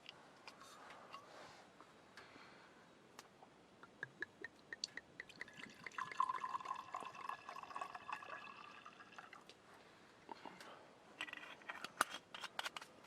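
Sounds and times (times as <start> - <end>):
wine pouring from bottle: 4.1 - 9.4.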